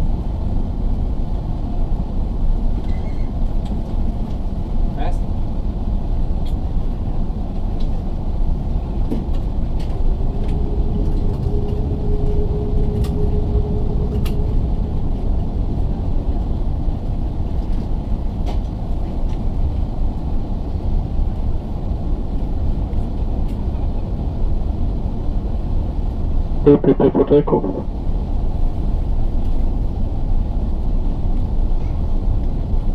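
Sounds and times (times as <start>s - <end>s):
aircraft cabin low rumble: 0.0s - 32.9s.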